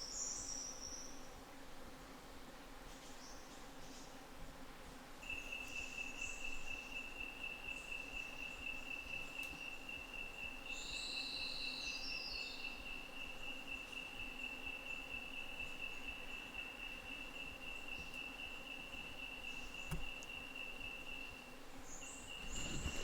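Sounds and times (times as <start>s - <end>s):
insect high-pitched trill: 5.2s - 22.5s
faint insect chirps: 5.2s - 23.0s.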